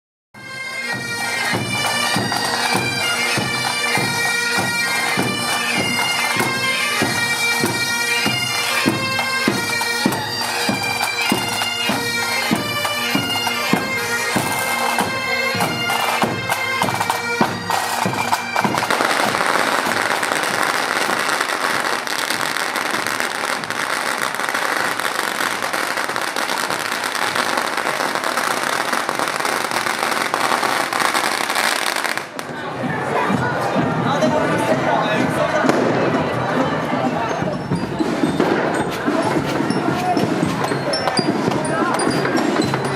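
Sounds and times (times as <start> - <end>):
bagpipes playing: 0.4 - 32.2
loud street din: 0.4 - 42.9
steady drum beat: 0.9 - 31.0, 32.2 - 42.9.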